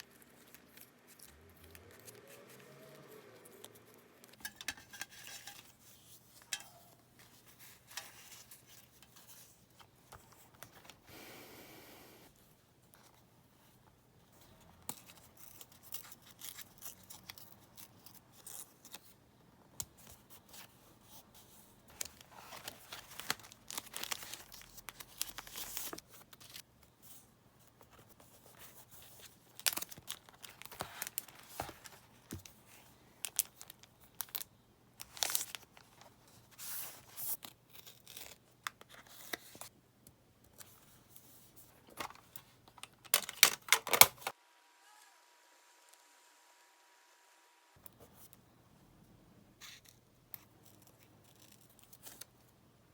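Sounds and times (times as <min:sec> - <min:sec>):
paper and tape rustling and ripping: 0:21.9 - 0:26.6, 0:28.0 - 0:34.4, 0:35.0 - 0:39.7.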